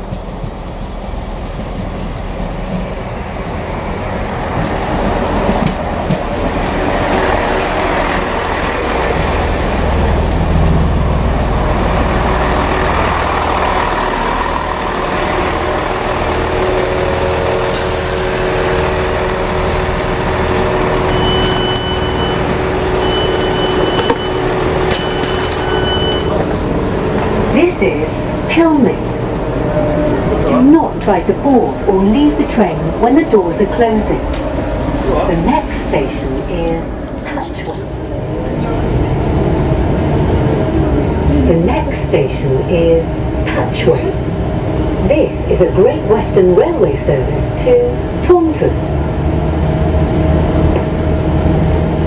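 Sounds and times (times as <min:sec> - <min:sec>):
diesel train rumbling: 0:00.0 - 0:52.0.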